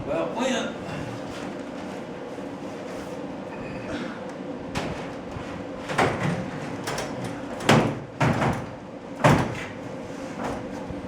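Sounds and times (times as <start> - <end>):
garage door panels clanking: 5.8 - 9.8.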